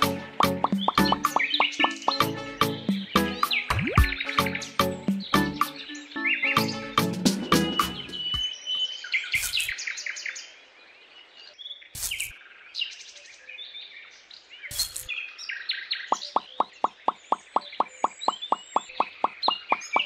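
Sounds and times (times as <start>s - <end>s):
background music: 0.0s - 8.4s
birds chirping: 0.0s - 20.0s
quick plinking beat: 0.4s - 2.3s, 2.9s - 5.7s.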